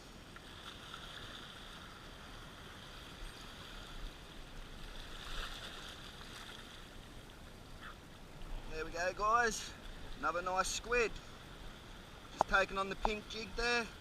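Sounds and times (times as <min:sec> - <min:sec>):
seawater washing against rocks: 0:12.3 - 0:14.0.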